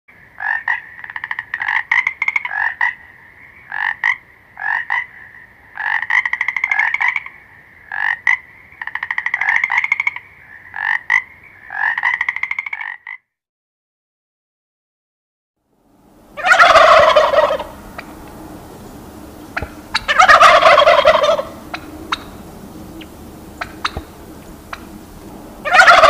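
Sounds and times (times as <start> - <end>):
frog croaking: 0.2 - 13.4, 19.4 - 26.0.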